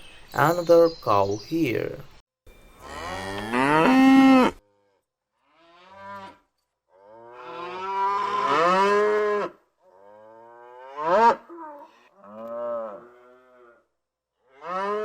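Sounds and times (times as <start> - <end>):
cow mooing: 2.8 - 13.8, 14.5 - 15.0.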